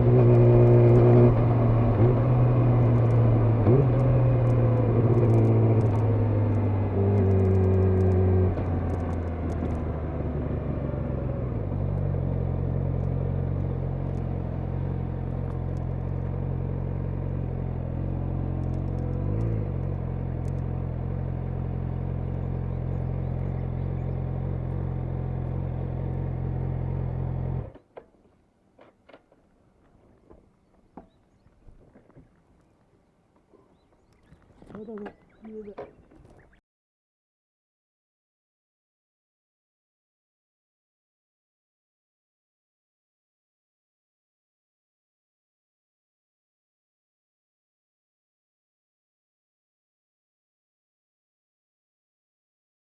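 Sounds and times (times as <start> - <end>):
motorcycle engine idling: 1.0 - 27.8, 33.6 - 36.6.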